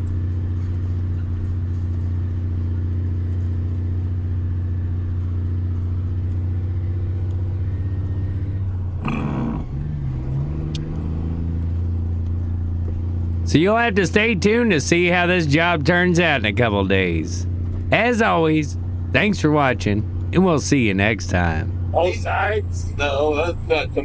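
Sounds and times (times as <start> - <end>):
vehicle engine droning: 0.0 - 24.0.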